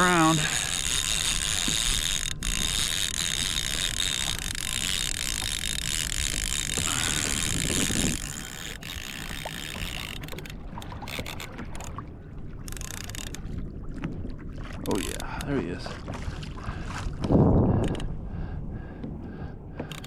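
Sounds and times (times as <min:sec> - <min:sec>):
fishing reel ratcheting: 0:00.0 - 0:11.9, 0:12.7 - 0:13.4, 0:14.8 - 0:15.5, 0:17.8 - 0:18.1.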